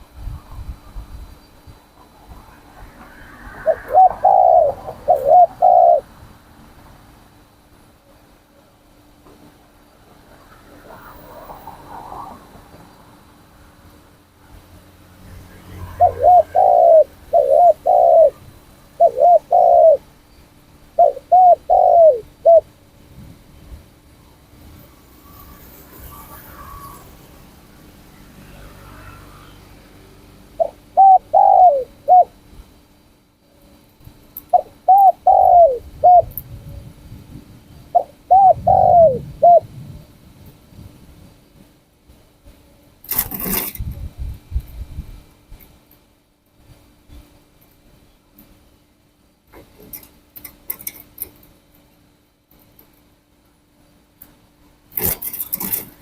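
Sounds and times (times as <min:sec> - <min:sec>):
dove cooing: 0:01.9 - 0:06.4, 0:15.5 - 0:20.1, 0:20.8 - 0:22.8, 0:30.5 - 0:32.4, 0:34.4 - 0:36.9, 0:37.7 - 0:39.7.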